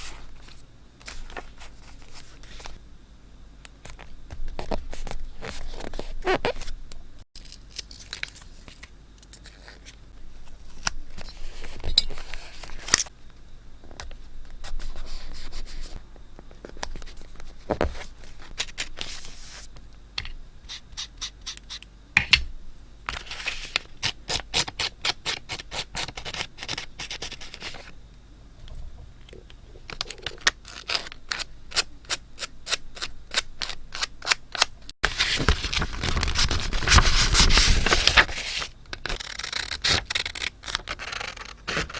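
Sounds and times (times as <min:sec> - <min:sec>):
paper rustling and scraping: 0:07.9 - 0:13.1, 0:16.6 - 0:19.7, 0:23.1 - 0:23.9, 0:35.0 - 0:41.9.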